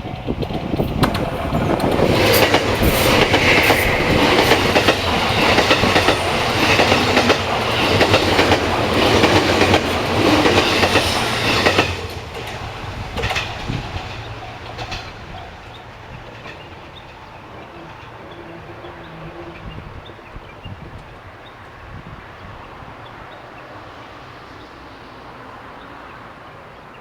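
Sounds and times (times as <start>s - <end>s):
train wheels clicking over rail joints: 0.0s - 19.3s
train passing: 0.0s - 27.0s.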